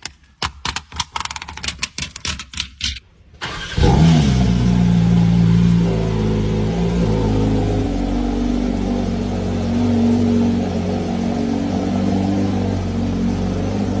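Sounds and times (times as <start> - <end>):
engine running steadily: 4.4 - 14.0.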